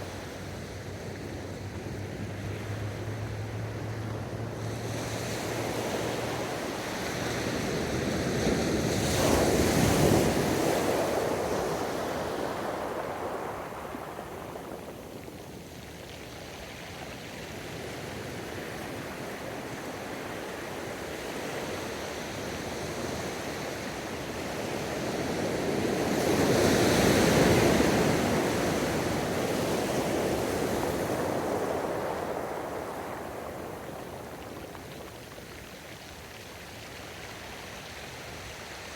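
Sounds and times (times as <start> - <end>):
ocean waves breaking: 27.2 - 36.1.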